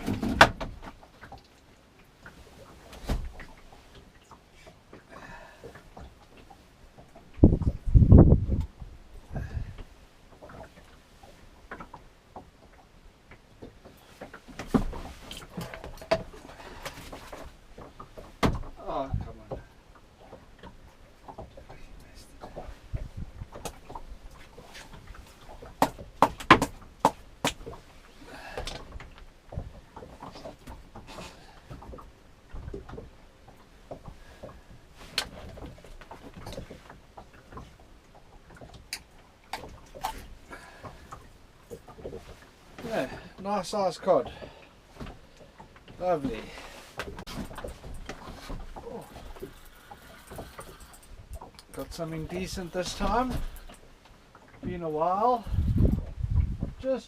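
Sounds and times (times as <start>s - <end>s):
knocks and taps in a boat: 0.0s - 1.5s, 2.2s - 43.5s, 44.1s - 57.0s
low wind rumble: 7.2s - 10.2s, 21.8s - 24.4s, 55.4s - 56.8s
gear knocking against small boat: 22.5s - 27.9s.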